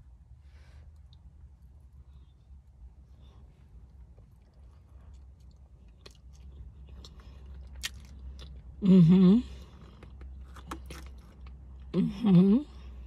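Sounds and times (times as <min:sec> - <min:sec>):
chewing with wet mouth clicks: 0:03.8 - 0:08.8, 0:09.7 - 0:11.9
person humming mmm: 0:08.8 - 0:09.6, 0:11.9 - 0:12.8.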